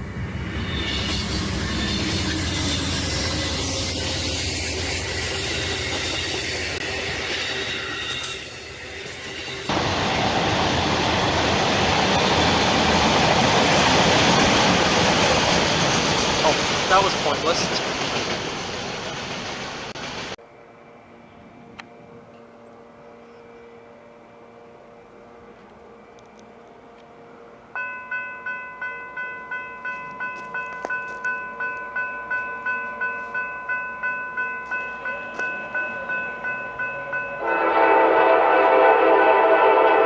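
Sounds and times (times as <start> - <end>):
railroad crossing bell ringing: 0.6 - 9.8, 27.7 - 40.0.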